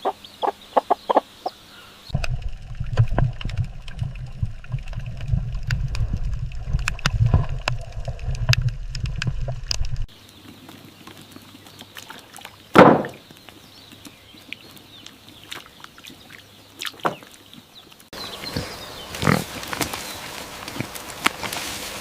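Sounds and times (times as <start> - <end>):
pig grunting: 18.4 - 19.6.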